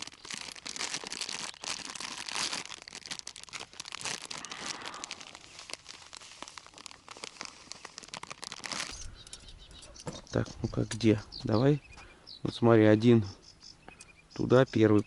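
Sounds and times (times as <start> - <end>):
groundbait and plastic packet crinkling: 0.0 - 9.6.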